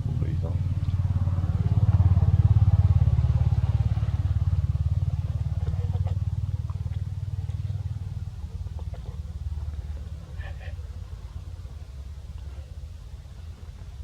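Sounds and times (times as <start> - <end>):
small engine running: 0.0 - 10.3.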